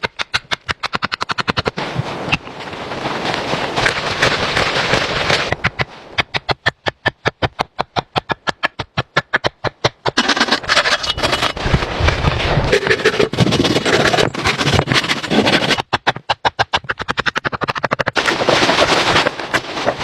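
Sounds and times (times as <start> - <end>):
dense rustling noise: 1.7 - 6.2, 10.2 - 15.9, 18.2 - 20.0.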